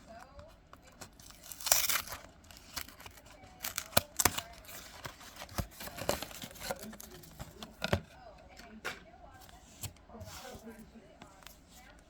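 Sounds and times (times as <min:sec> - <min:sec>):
trading cards clicking and rustling: 0:00.2 - 0:12.0
card snaps: 0:01.3 - 0:08.0.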